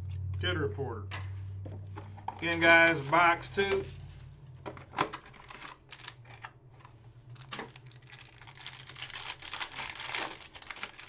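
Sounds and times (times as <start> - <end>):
cards being handled: 1.2 - 7.8
card packs being opened: 1.6 - 11.0.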